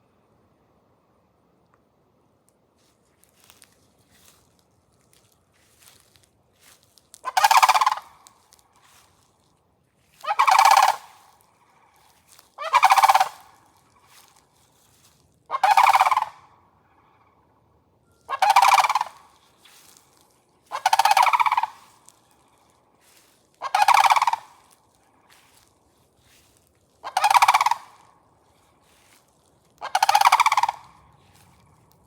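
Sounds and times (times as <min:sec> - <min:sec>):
large birds rattling calls: 0:07.2 - 0:08.5, 0:10.2 - 0:14.4, 0:15.5 - 0:16.4, 0:18.3 - 0:25.7, 0:27.0 - 0:28.1, 0:28.8 - 0:32.0.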